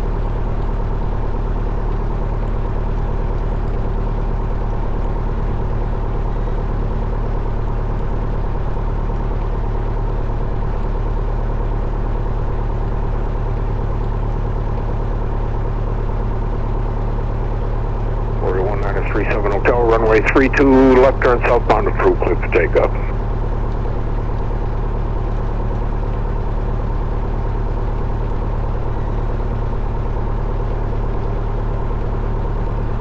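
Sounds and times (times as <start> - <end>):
airplane engine idling: 4.9 - 8.6, 17.5 - 23.3, 27.6 - 33.0.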